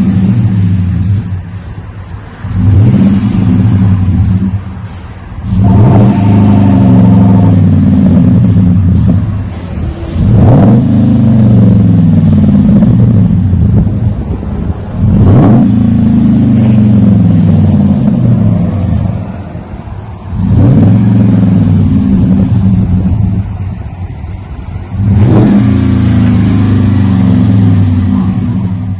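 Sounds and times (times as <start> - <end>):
truck engine revving: 0.0 - 28.9.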